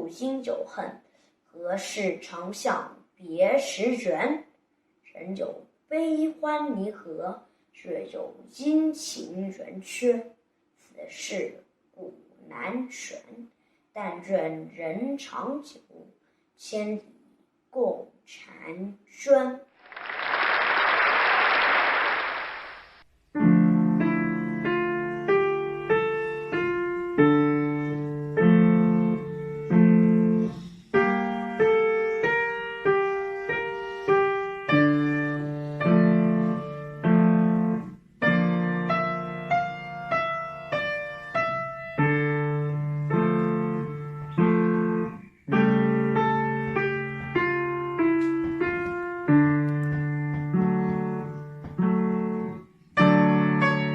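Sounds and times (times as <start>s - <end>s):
burst of even noise: 19.8s - 23.0s
slow piano melody: 23.3s - 53.9s.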